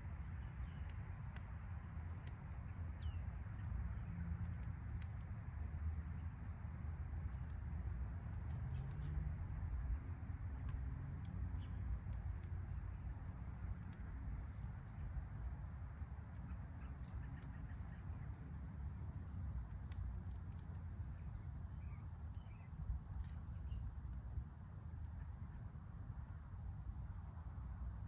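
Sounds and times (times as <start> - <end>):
fire burning with low rush: 0.0 - 28.0
crackles and pops of firewood: 3.5 - 5.8, 7.3 - 26.6.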